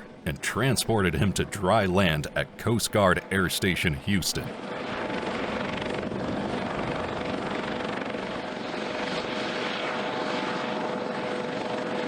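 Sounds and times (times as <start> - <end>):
helicopter turbine and rotor: 0.0 - 12.0.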